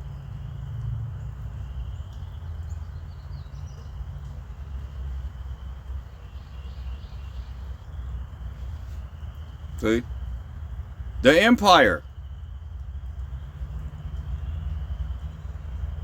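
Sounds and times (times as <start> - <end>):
steady low rumble: 0.0 - 16.0
bird chirps: 1.2 - 10.2.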